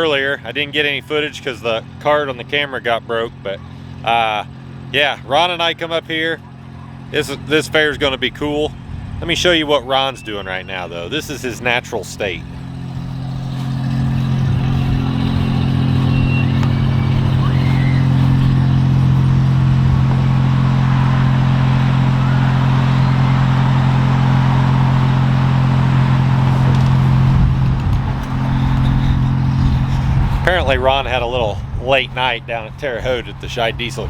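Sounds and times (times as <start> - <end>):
engine low hum: 0.0 - 34.0.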